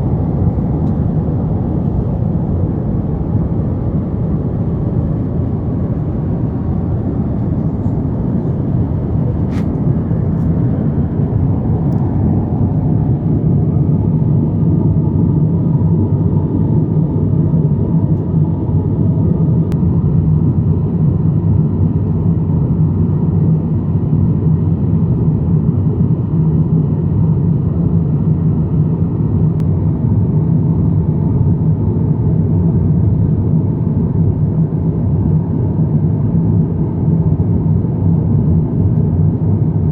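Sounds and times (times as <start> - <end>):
aircraft engines droning: 0.0 - 26.2.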